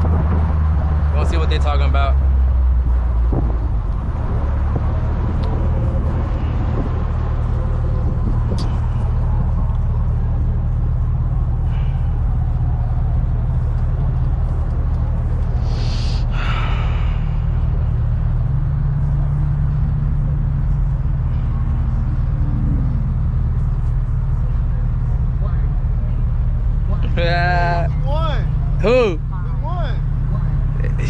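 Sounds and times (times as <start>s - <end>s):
car engine idling: 0.0s - 31.0s
short hiss: 15.6s - 16.2s.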